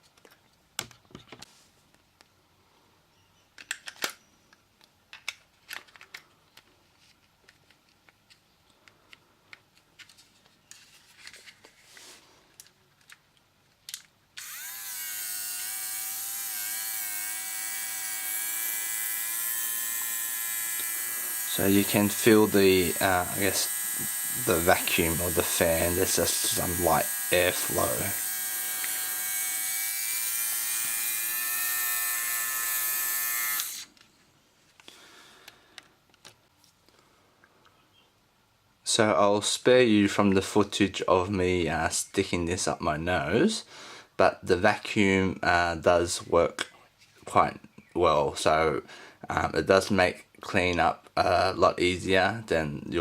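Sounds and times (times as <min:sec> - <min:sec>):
small plastic clicks: 0:03.6 - 0:10.2, 0:12.5 - 0:14.6
hair trimmer motor whining: 0:14.4 - 0:33.9.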